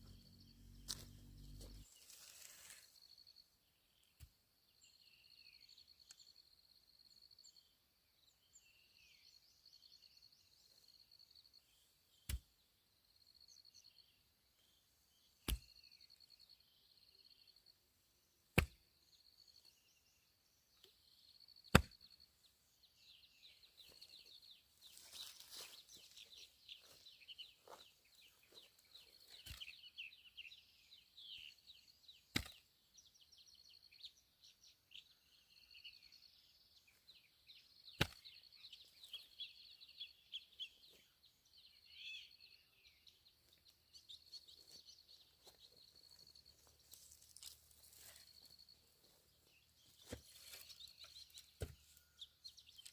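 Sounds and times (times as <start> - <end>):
sharp chopping strikes: 15.4 - 15.7, 18.6 - 18.8, 21.7 - 22.1, 32.3 - 32.6, 38.0 - 38.3, 51.6 - 51.8
insect chirps: 32.9 - 52.9.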